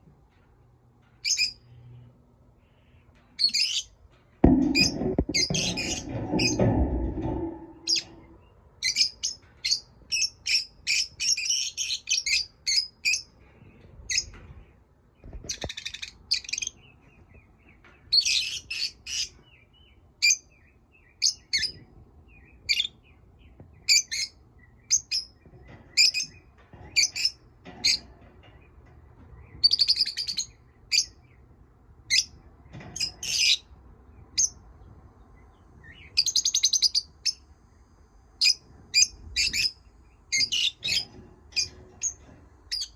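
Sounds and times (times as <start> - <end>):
lovebirds chirping: 1.2 - 1.7, 2.6 - 4.0, 35.3 - 37.4, 38.4 - 42.9.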